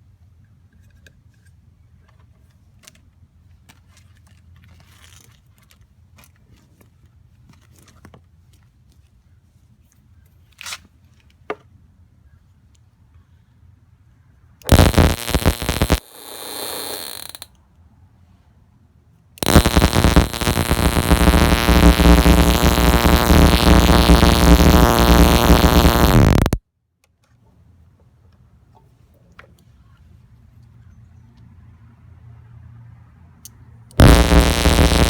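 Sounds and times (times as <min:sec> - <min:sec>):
crackling buzz of sparks: 0:14.7 - 0:17.5, 0:19.4 - 0:26.6, 0:34.0 - 0:35.0.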